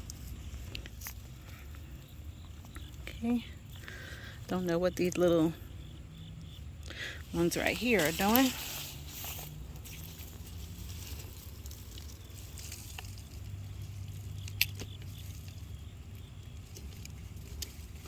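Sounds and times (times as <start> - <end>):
steady low hum: 0.0 - 18.0
hands rustling in straw and soil: 6.7 - 18.0.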